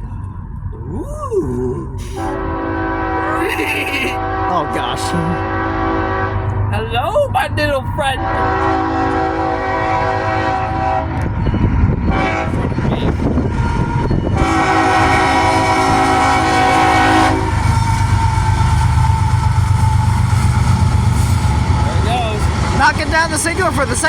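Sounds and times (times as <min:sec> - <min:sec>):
train rumbling past: 0:00.0 - 0:24.0
locomotive air horn blasts: 0:02.3 - 0:03.6, 0:04.2 - 0:06.6, 0:08.2 - 0:11.4, 0:12.1 - 0:20.5.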